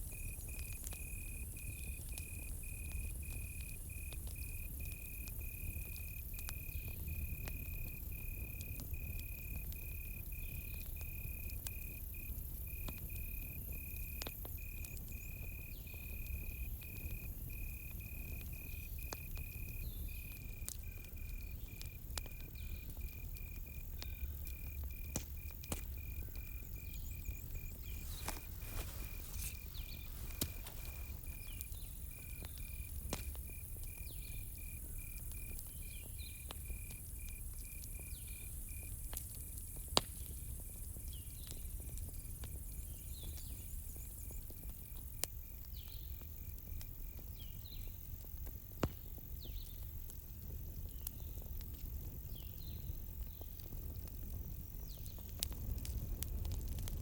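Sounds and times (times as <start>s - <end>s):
high insect hiss: 0.0s - 44.4s
cricket chirping: 0.0s - 48.4s
campfire crackling and popping: 0.0s - 57.0s.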